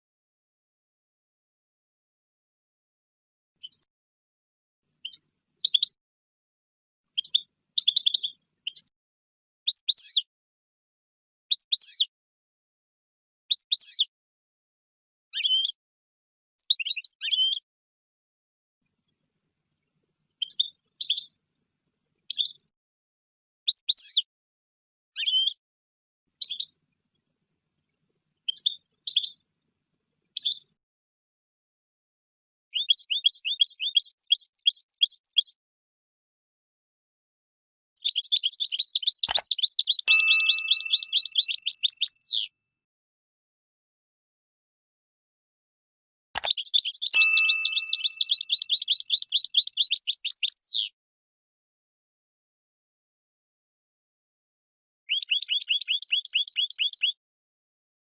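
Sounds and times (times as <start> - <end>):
finch chirping: 5.0 - 5.9, 7.2 - 8.9, 20.4 - 21.3, 22.3 - 22.6, 26.4 - 26.8, 28.5 - 29.4, 32.8 - 35.5, 38.0 - 42.5, 46.4 - 50.9, 55.1 - 57.2
goldfinch twittering: 38.4 - 42.4, 46.4 - 50.7.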